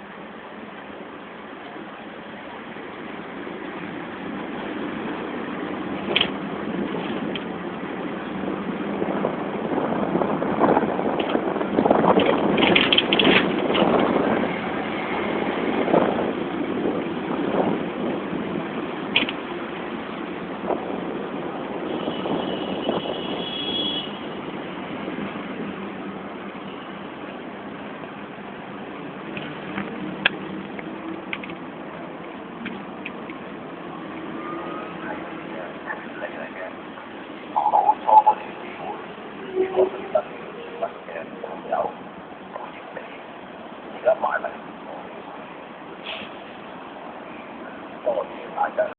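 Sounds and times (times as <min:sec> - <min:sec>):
tram rumbling on tracks: 0:00.0 - 0:48.9
sharp clacks of tram wheels: 0:03.0 - 0:23.1
clicks: 0:29.3 - 0:31.6.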